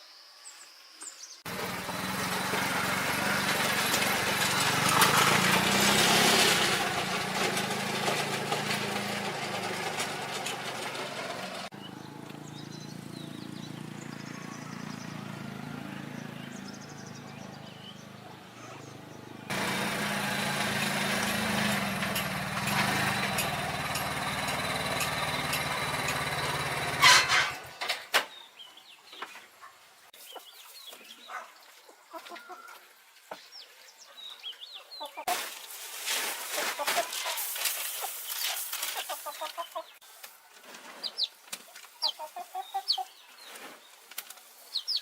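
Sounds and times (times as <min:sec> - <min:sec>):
engine stopping with knock: 0:01.5 - 0:12.6, 0:19.5 - 0:27.8
engine running steadily: 0:01.5 - 0:17.0, 0:19.4 - 0:27.6
small birds calling: 0:11.7 - 0:19.5, 0:33.3 - 0:35.3, 0:37.0 - 0:40.1, 0:40.8 - 0:45.0
chickens clucking: 0:29.6 - 0:32.8, 0:34.8 - 0:35.5, 0:36.5 - 0:43.6.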